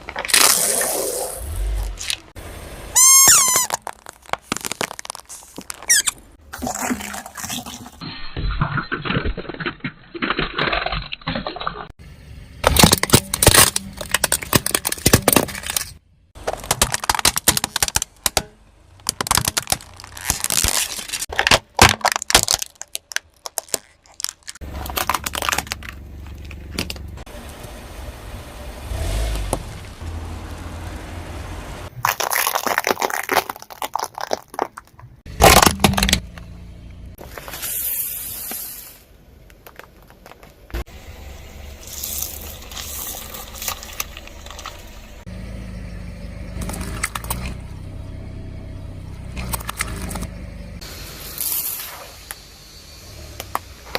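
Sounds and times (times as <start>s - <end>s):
objects crunching under car tyres: 0.0s - 8.0s, 12.6s - 27.8s, 28.8s - 48.0s, 48.9s - 52.4s
low steady rumble: 40.4s - 53.9s.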